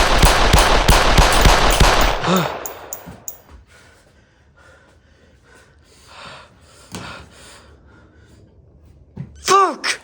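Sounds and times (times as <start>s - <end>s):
rapid bangs and crackling: 0.0s - 2.8s.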